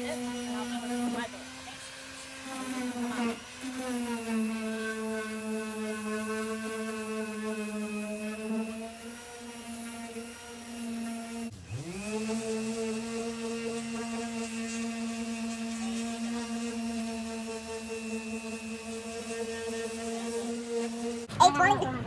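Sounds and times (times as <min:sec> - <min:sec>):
power tool motor running: 0:00.0 - 0:21.2.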